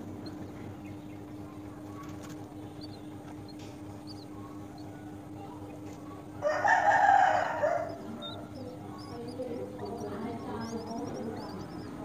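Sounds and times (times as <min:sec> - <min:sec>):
faint high bird chirps: 0:00.0 - 0:12.0
loud bird call: 0:06.4 - 0:12.0.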